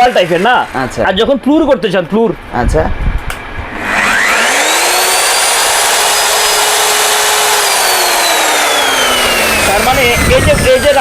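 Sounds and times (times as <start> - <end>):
electric drill motor whining: 0.0 - 1.2, 3.6 - 11.0.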